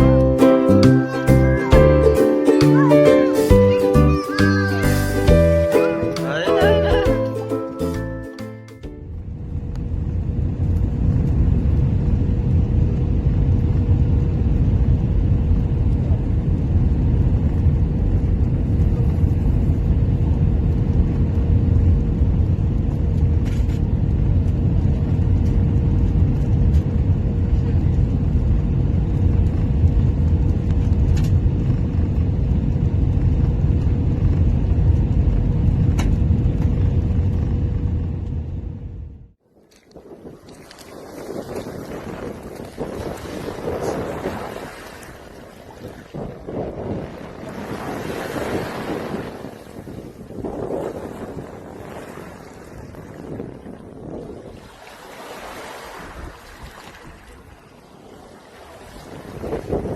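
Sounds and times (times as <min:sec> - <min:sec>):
vehicle interior rumble: 0:08.8 - 0:39.4
constant hum: 0:08.9 - 0:47.5.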